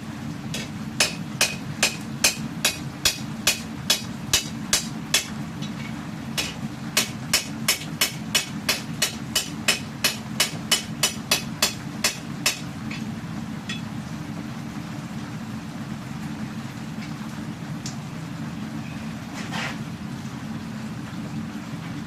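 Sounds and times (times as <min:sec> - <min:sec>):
steady low hum: 0:00.0 - 0:22.0
hammer striking hot steel on anvil: 0:00.5 - 0:05.8, 0:06.4 - 0:13.1.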